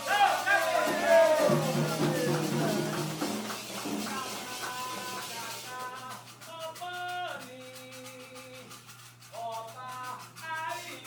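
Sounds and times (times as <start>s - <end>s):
voices singing held notes: 0.0s - 8.2s
shaker rhythm: 0.0s - 11.0s.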